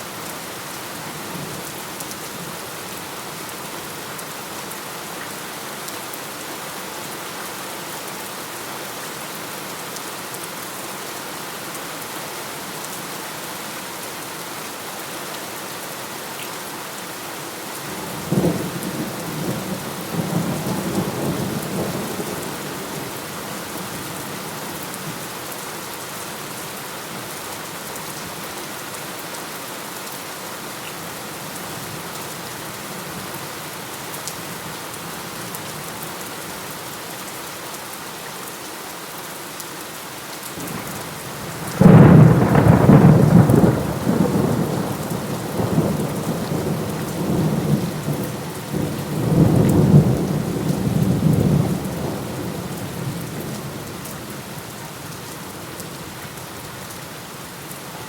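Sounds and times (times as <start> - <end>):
heavy rain falling: 0.0 - 58.0
thunderclap rumbling: 41.7 - 47.8.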